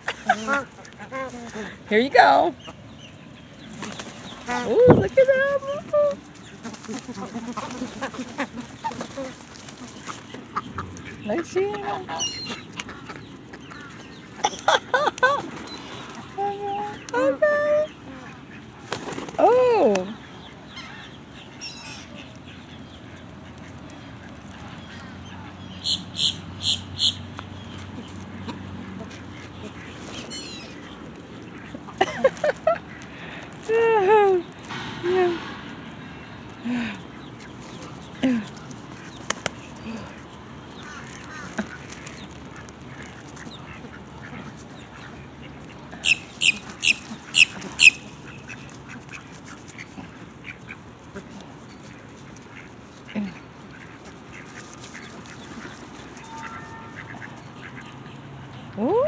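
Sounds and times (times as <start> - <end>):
duck quacking: 0.0 - 2.8, 42.9 - 51.5, 52.4 - 58.2
ducks quacking: 0.0 - 58.9
faint bird calls: 34.4 - 59.0.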